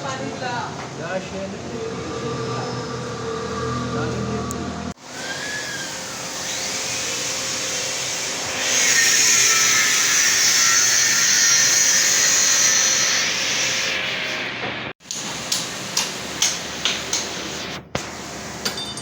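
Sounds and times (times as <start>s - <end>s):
power tool running with a hiss: 5.0s - 14.6s.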